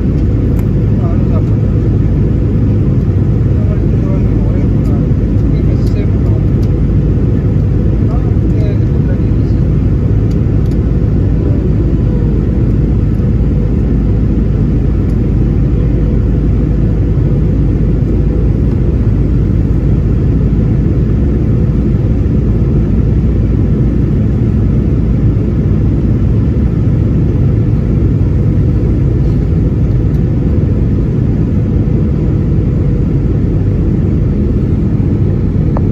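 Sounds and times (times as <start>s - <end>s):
airliner cabin drone: 0.0s - 35.9s.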